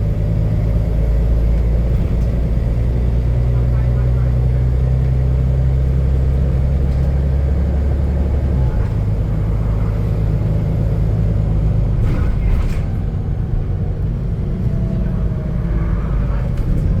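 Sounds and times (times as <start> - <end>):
bus diesel engine rumbling: 0.0 - 17.0.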